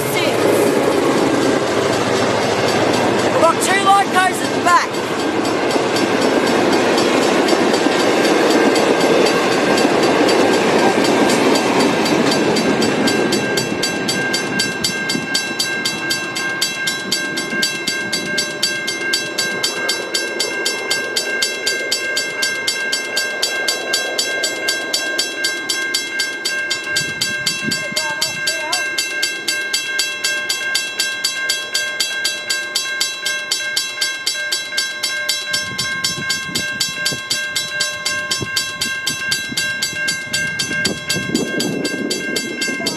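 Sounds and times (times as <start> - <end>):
diesel train rumbling past: 0.0 - 30.4
level-crossing bell ringing: 0.0 - 42.9.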